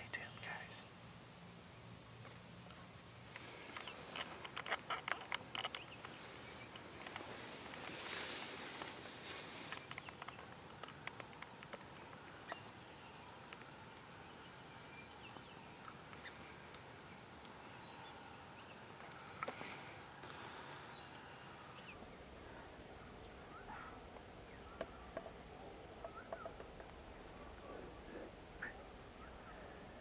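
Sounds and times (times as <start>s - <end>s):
faint hiss: 0.0s - 22.7s
distant songbirds chirping: 0.0s - 30.0s
light clicks: 8.7s - 16.8s.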